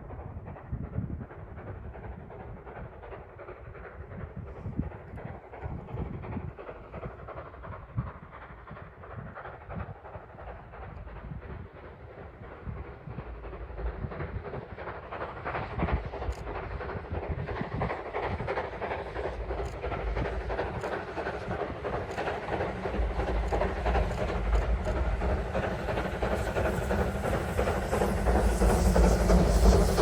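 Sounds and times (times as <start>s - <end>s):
steam train approaching: 0.0s - 30.0s.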